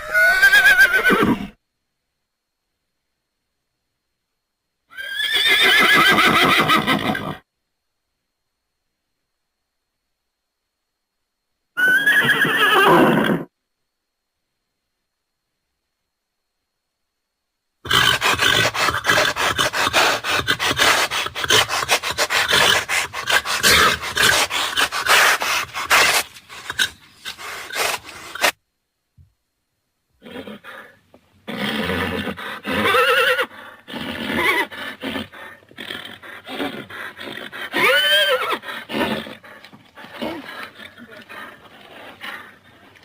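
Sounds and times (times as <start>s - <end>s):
horse calling and whinnying: 0.0s - 1.6s, 4.9s - 7.4s, 11.8s - 13.5s, 17.8s - 28.6s, 30.2s - 43.0s
rough crackling horse sound: 17.9s - 28.6s, 38.9s - 43.0s.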